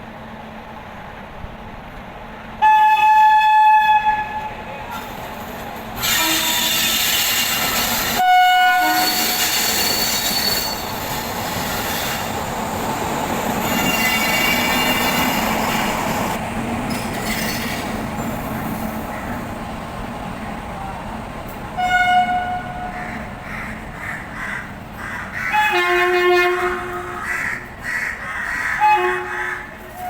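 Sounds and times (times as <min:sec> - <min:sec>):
train wheels rumbling on rail: 0:00.0 - 0:30.0
train horn blasts: 0:02.6 - 0:04.6, 0:06.0 - 0:07.6, 0:08.2 - 0:10.8, 0:13.7 - 0:15.2, 0:21.8 - 0:23.0, 0:25.5 - 0:27.3, 0:28.8 - 0:30.0
wheels squealing: 0:09.0 - 0:12.6, 0:13.5 - 0:16.2.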